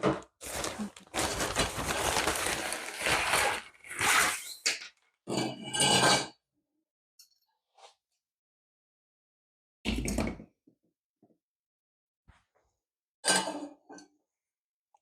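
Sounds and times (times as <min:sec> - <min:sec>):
packaging rustling: 0:00.2 - 0:04.4.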